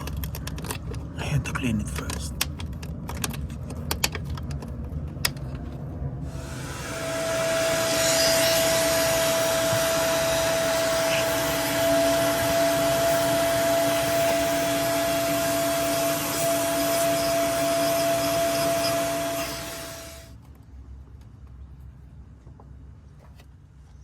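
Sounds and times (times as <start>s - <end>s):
low hum: 4.8s - 20.3s
cleaning tool rushing hiss: 6.3s - 20.3s.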